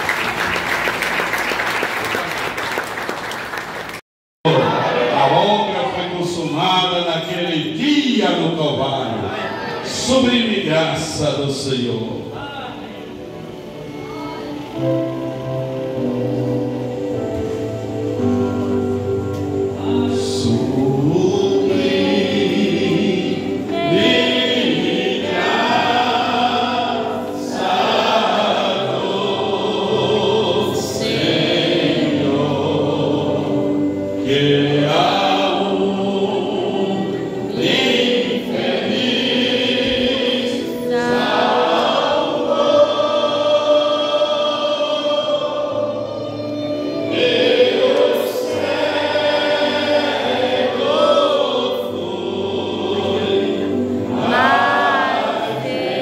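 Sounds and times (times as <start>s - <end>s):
group singing worship song: 4.5s - 12.3s, 14.0s - 56.0s.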